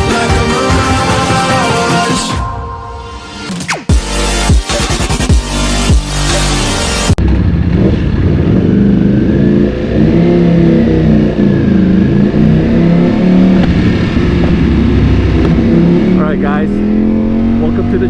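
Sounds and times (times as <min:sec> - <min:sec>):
electronic music: 0:00.0 - 0:07.2
motorcycle engine revving: 0:06.4 - 0:18.0.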